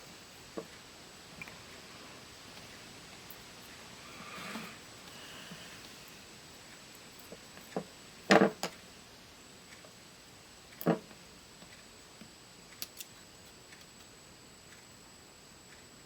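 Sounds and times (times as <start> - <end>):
faint steady hiss: 0.0 - 16.0
clicks and knocks of small parts: 12.8 - 13.1.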